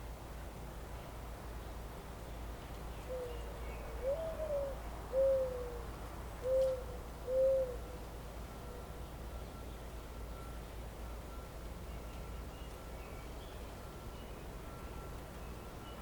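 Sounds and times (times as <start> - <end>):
bird hooting softly: 3.0 - 8.0.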